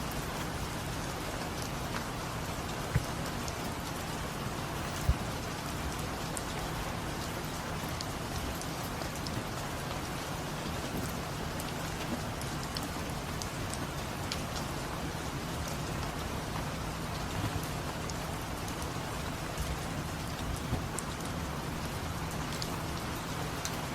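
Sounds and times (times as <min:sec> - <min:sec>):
light drip ticks: 0:00.0 - 0:23.9
steady rain falling: 0:00.0 - 0:23.9
short dull thumps: 0:00.2 - 0:09.6, 0:17.4 - 0:23.8.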